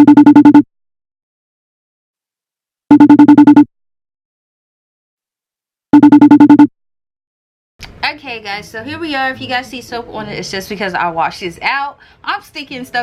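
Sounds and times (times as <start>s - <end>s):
electronic trilling beeps: 0.0s - 0.6s, 2.9s - 3.6s, 6.0s - 6.7s.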